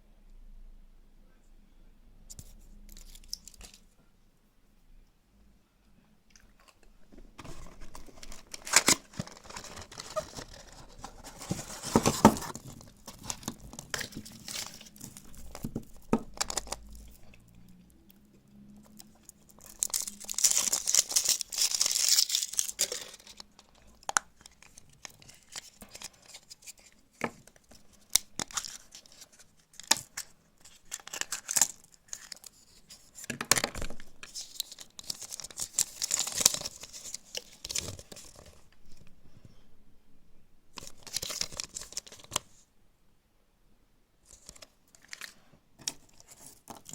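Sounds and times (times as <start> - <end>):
foil wrapper tearing and crinkling: 7.7 - 17.0, 19.5 - 23.6, 28.0 - 32.6, 34.2 - 38.4, 40.8 - 42.4.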